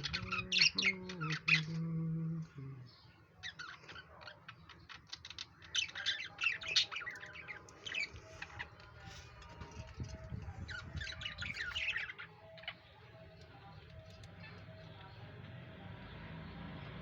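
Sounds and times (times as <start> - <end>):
budgerigars chirping and squawking: 0.0 - 1.8, 3.4 - 9.0, 10.0 - 13.5.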